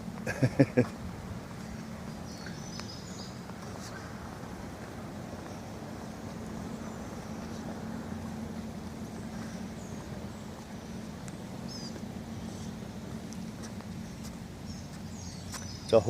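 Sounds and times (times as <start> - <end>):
low steady hum: 0.0 - 16.0
faint bird chirps: 1.8 - 4.2, 9.0 - 12.8.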